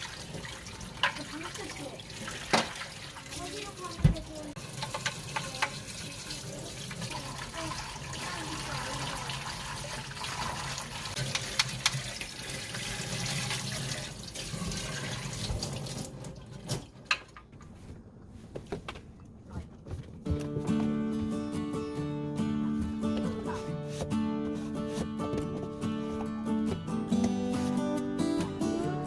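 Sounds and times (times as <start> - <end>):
tap water running and splashing: 0.0 - 17.4.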